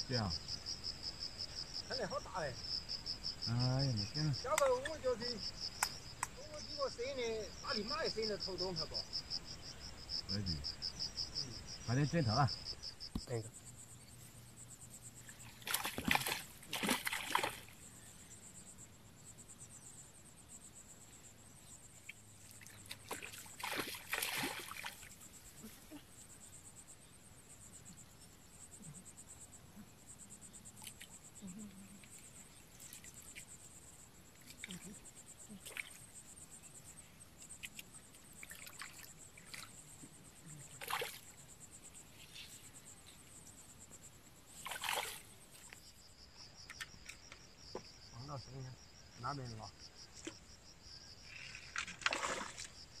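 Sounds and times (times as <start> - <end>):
crickets chirping: 0.0 - 53.0
water splashing and sloshing: 15.2 - 17.8, 22.4 - 25.3, 37.4 - 41.4, 44.5 - 45.8, 51.5 - 52.9.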